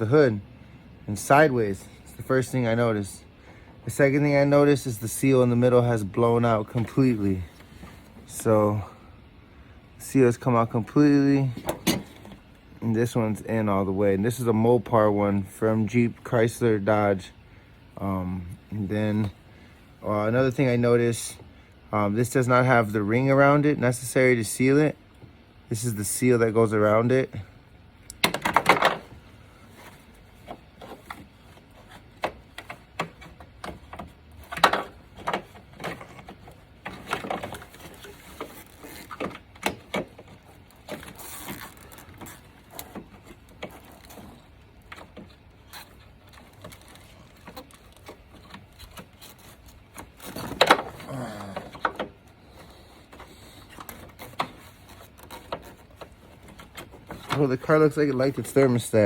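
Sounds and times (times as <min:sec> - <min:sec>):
parts clattering: 0:11.4 - 0:12.6, 0:28.1 - 0:59.0.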